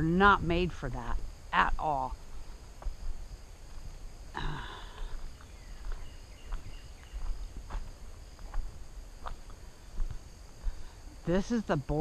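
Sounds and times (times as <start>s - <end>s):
high insect chorus: 0.0s - 12.0s
footsteps walking: 2.1s - 11.0s.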